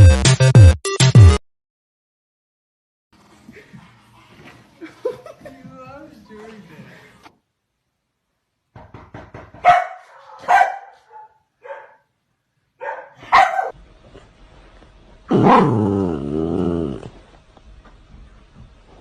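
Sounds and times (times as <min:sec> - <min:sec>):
dog barking: 0:09.6 - 0:12.1, 0:12.8 - 0:13.8, 0:15.4 - 0:15.8.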